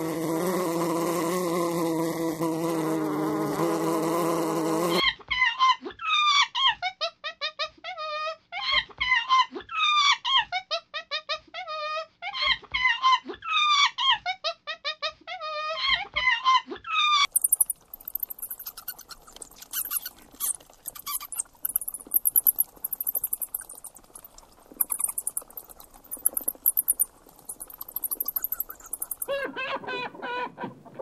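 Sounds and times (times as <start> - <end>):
bat high chirps and clicks: 17.3 - 29.4
howler monkey squealing calls: 17.3 - 30.4.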